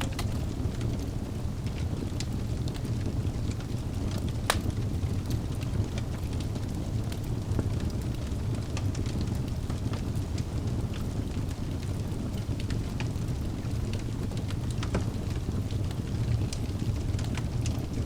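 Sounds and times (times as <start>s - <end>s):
fire popping and snapping: 0.0s - 18.0s
low rumble of fire: 0.0s - 18.0s.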